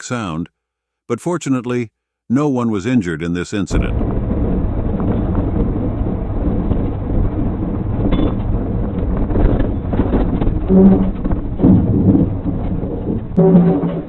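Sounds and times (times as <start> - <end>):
wind buffeting microphone: 3.7 - 13.4
low rumble: 3.7 - 14.0.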